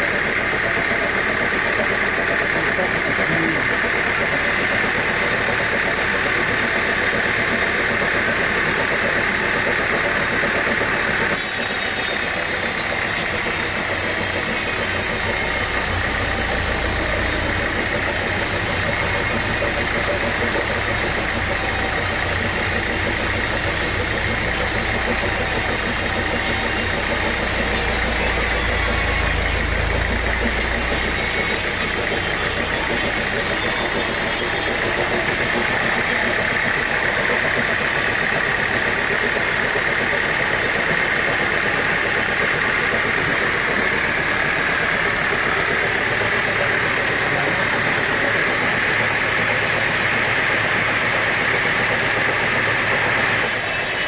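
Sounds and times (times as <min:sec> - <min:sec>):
sawmill machinery droning: 0:00.0 - 0:54.0.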